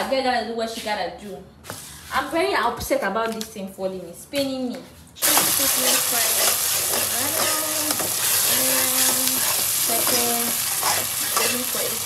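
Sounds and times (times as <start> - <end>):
sauce sizzling in oil: 5.2 - 12.0
spatula scraping pan: 5.2 - 12.0.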